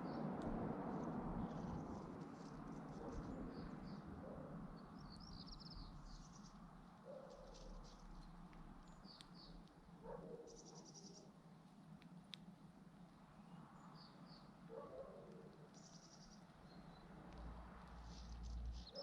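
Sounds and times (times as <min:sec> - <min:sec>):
low background rumble: 0:00.0 - 0:06.9
sparrow chirping: 0:10.3 - 0:11.3, 0:15.7 - 0:17.1, 0:18.0 - 0:19.0.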